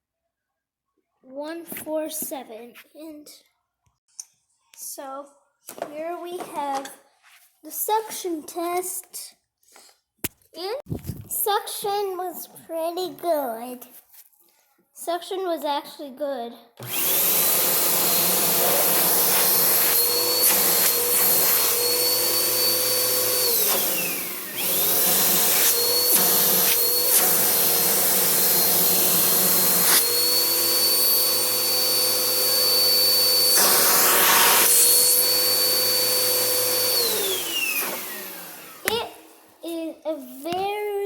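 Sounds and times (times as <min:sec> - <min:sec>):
vacuum cleaner motor whining: 0:16.8 - 0:39.6.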